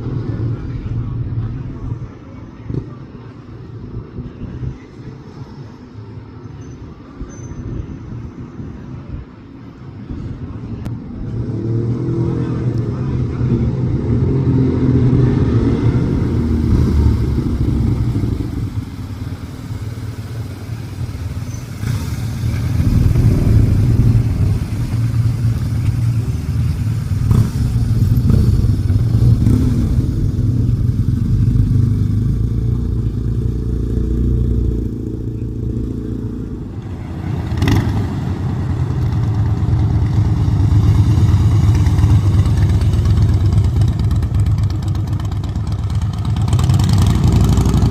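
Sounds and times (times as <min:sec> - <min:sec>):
motorcycle engines revving: 0:10.9 - 0:47.9.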